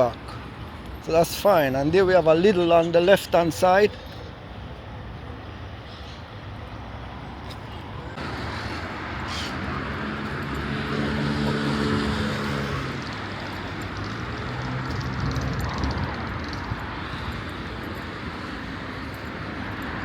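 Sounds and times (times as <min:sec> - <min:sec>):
street traffic noise: 0:00.0 - 0:20.0
vehicle passing with engine hum: 0:06.8 - 0:20.0.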